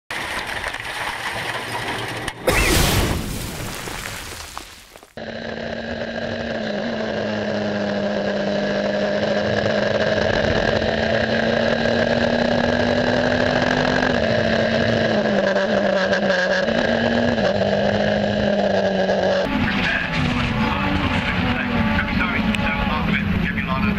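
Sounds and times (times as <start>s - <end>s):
racing car engine running: 5.2s - 23.9s.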